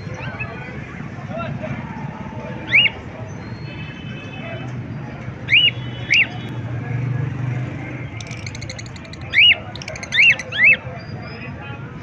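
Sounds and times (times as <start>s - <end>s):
high chirping: 8.2s - 10.8s
parrots calling: 8.2s - 10.8s.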